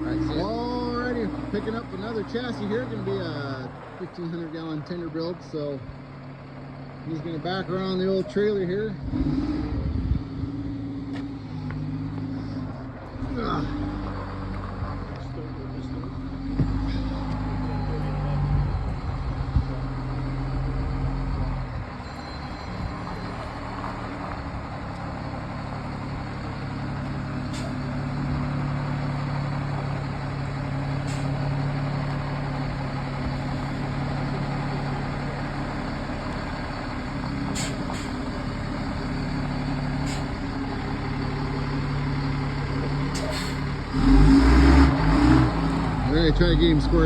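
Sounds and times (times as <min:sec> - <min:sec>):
truck engine idling: 0:00.0 - 0:47.0
sharp clicks or hisses: 0:37.5 - 0:38.2.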